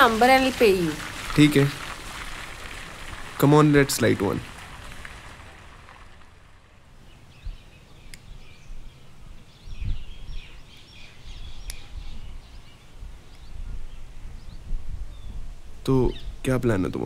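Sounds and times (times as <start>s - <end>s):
small birds chirping: 6.9s - 17.0s
sharp clicks: 8.1s - 8.3s.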